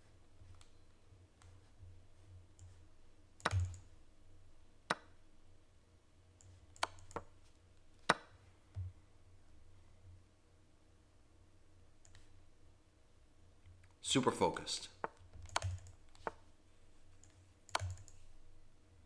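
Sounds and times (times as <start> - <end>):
computer chess move clicks: 3.4 - 4.0, 4.8 - 5.2, 6.4 - 8.9, 14.1 - 16.5, 17.1 - 18.5.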